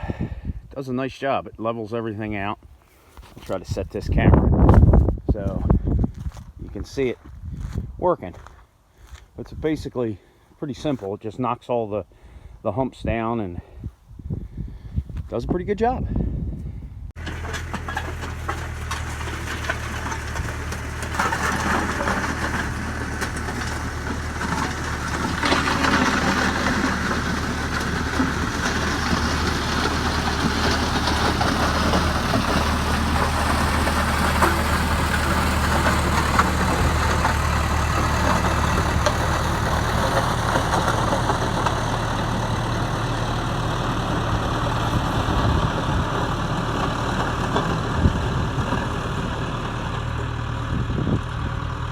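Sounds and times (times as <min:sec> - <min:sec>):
blade scraping and clattering: 0:17.2 - 0:50.0
skid steer engine running: 0:17.2 - 0:51.9.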